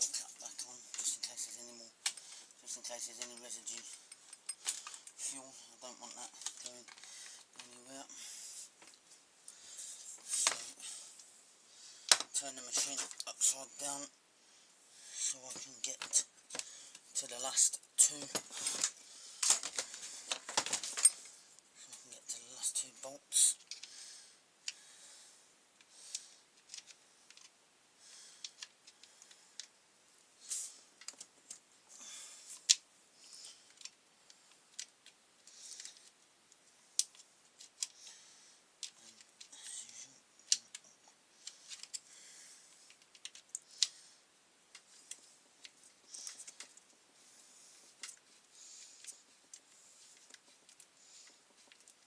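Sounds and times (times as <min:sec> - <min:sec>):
hand tools clicking and scraping: 0:03.2 - 0:05.3, 0:18.1 - 0:21.4.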